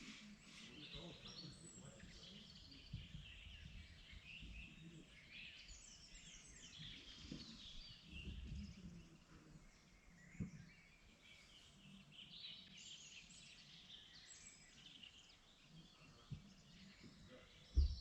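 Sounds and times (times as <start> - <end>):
songbirds chirping and trilling: 0.0 - 18.0.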